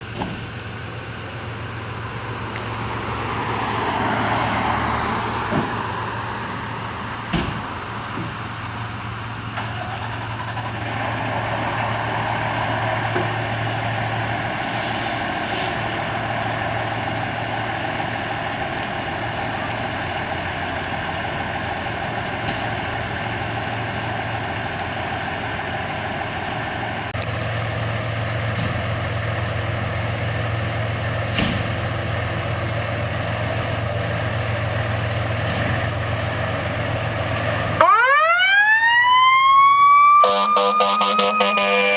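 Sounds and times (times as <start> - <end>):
diesel engine running: 0.0 - 38.1, 39.7 - 41.9
air brakes hiss: 13.7 - 16.0.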